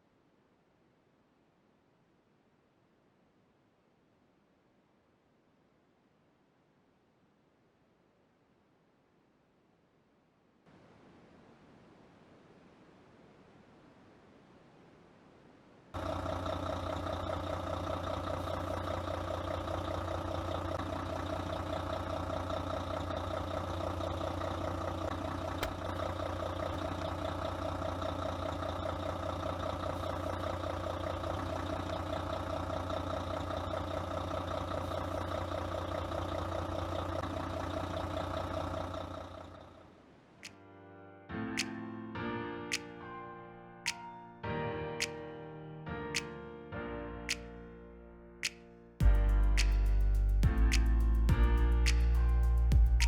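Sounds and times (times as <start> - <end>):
truck engine idling: 16.0 - 39.9.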